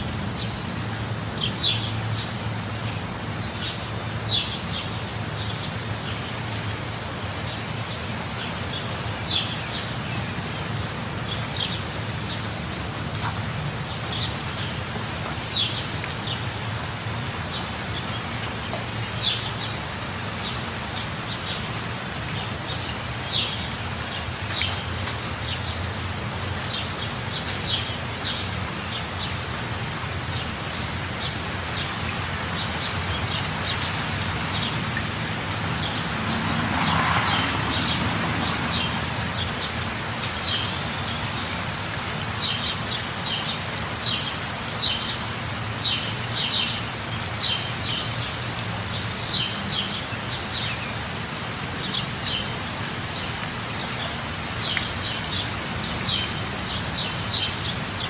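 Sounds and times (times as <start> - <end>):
steady rain: 0.0 - 58.0
birds chirping: 30.3 - 58.0.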